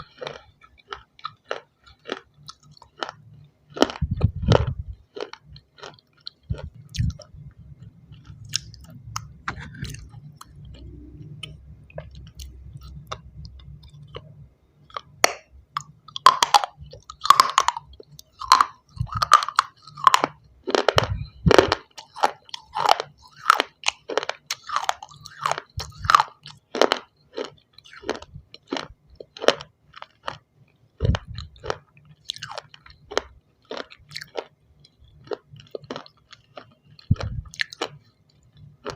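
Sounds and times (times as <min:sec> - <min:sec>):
crunchy stone chewing: 0:00.0 - 0:07.3, 0:14.9 - 0:30.4, 0:31.0 - 0:38.0
low hum: 0:02.7 - 0:05.6, 0:06.4 - 0:21.9.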